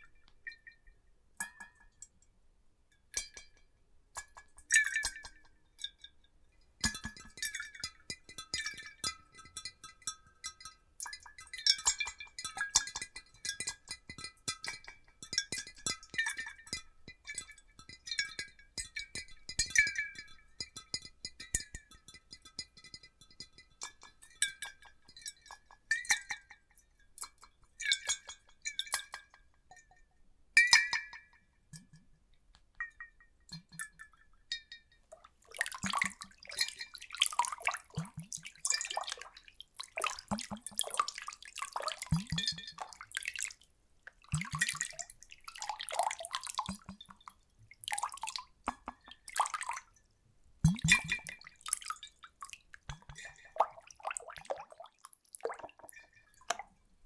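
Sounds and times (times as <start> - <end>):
water splashing and sloshing: 35.1 - 50.0, 50.7 - 56.7
water dripping: 35.1 - 56.8.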